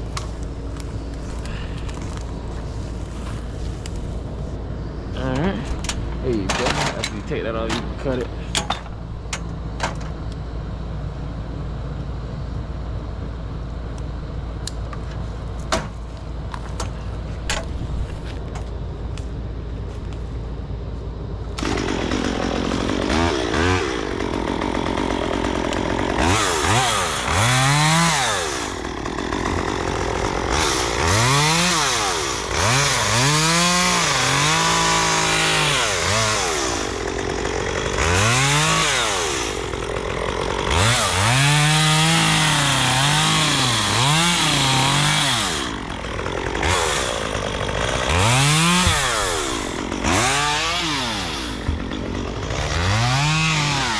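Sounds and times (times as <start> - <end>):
chainsaw idling and revving: 21.6 - 53.9.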